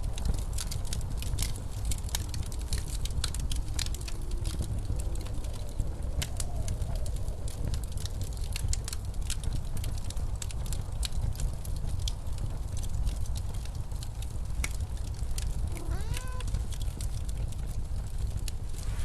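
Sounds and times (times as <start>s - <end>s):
blizzard wind rumble: 0.0s - 19.0s
wood fire crackling: 0.0s - 19.0s.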